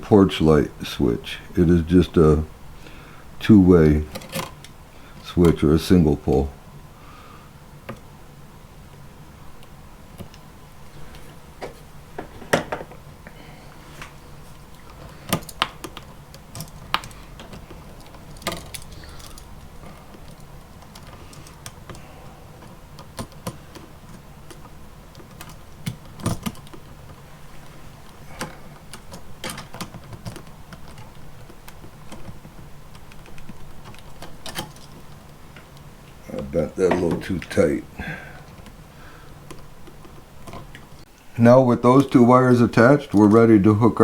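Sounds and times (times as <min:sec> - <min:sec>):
low steady hum: 0:00.0 - 0:44.0
pliers and wire clicking: 0:14.7 - 0:27.2.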